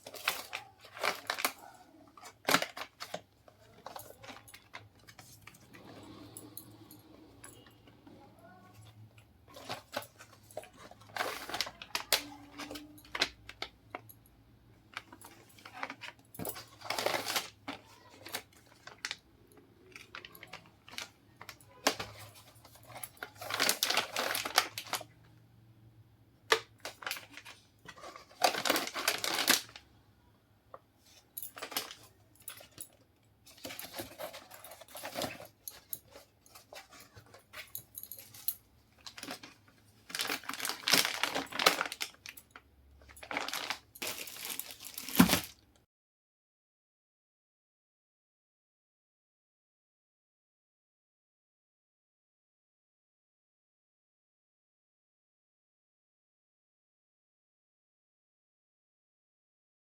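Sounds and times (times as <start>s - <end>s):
plastic packaging crinkling: 0.0s - 6.7s, 9.5s - 13.7s, 14.9s - 19.2s, 19.8s - 25.1s, 26.5s - 29.9s, 31.4s - 32.9s, 33.5s - 45.6s
items clicking and knocking: 0.0s - 14.3s, 14.9s - 25.4s, 26.4s - 29.8s, 30.7s - 45.6s.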